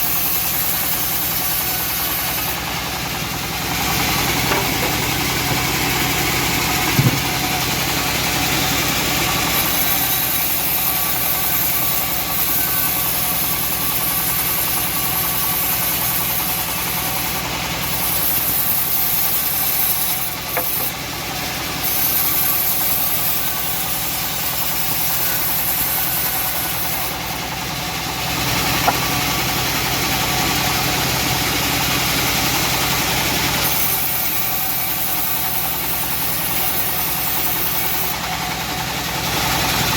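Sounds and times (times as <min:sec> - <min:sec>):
bandsaw mill droning: 0:00.0 - 0:39.9
sharp knocks: 0:04.4 - 0:05.7, 0:06.8 - 0:07.4.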